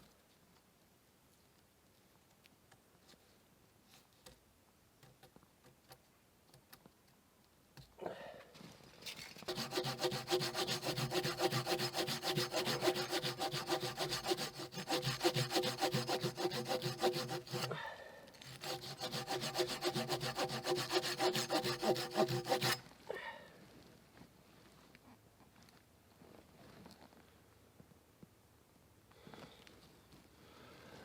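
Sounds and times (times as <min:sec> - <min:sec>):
hand saw cutting wood: 0:09.1 - 0:17.8, 0:18.4 - 0:22.8.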